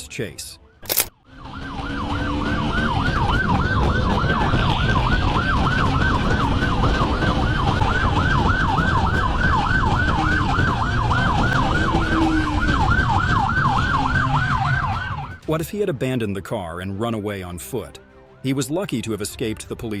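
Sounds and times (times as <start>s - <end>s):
road and engine noise: 0.0s - 17.0s
police siren yelping: 1.2s - 15.4s.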